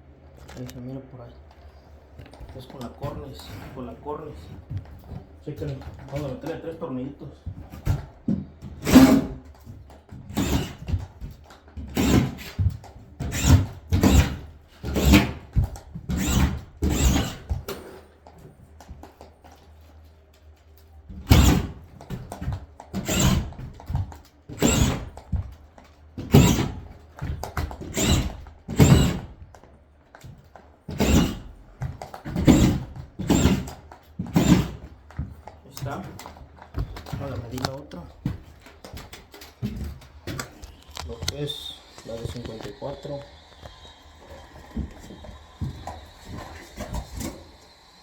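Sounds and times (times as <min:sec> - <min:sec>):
knocks and thuds on drywall: 0:07.4 - 0:17.9, 0:21.1 - 0:29.5, 0:30.2 - 0:37.6.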